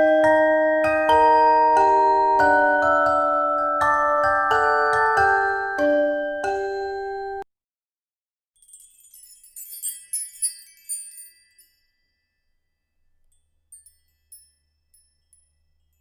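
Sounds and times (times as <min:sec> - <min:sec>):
glockenspiel tune: 0:00.0 - 0:07.4, 0:08.6 - 0:16.0
sparkling high chimes: 0:08.6 - 0:16.0.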